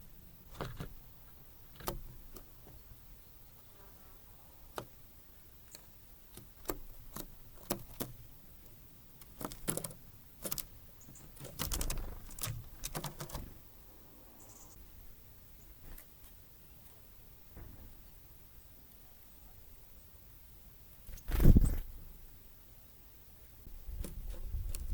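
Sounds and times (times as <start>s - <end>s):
birds pecking at a feeder: 0.4s - 3.3s, 4.4s - 13.6s.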